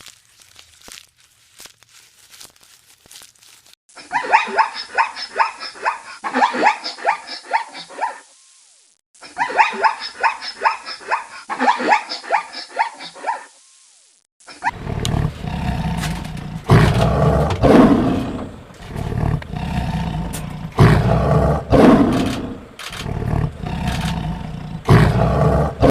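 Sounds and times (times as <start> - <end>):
animal barking calls: 4.0 - 8.3, 9.2 - 13.6, 14.5 - 25.9.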